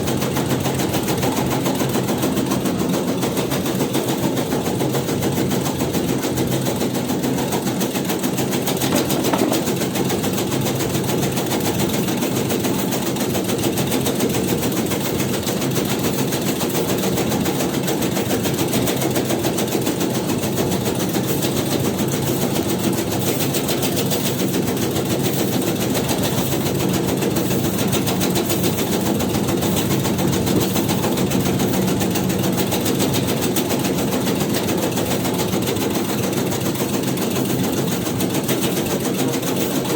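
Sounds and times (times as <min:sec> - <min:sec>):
tobacco shredding machine running: 0:00.0 - 0:39.9.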